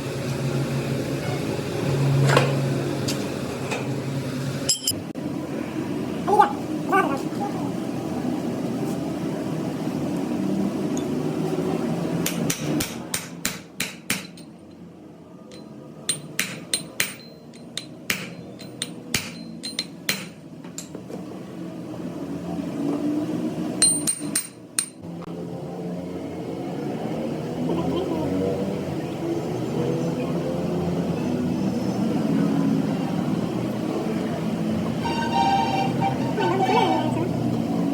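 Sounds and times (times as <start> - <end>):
hammer striking metal: 4.7 - 5.0, 12.2 - 14.6, 15.5 - 20.4.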